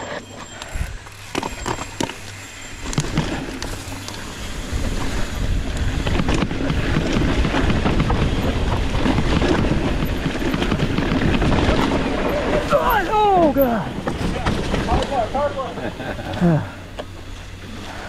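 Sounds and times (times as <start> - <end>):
bike clicks and rattles: 0.0 - 18.0
wind buffeting microphone: 4.3 - 15.5.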